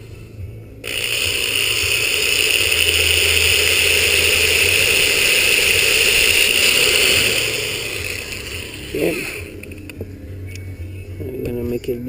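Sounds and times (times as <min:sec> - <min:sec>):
power drill boring: 0:00.8 - 0:09.8.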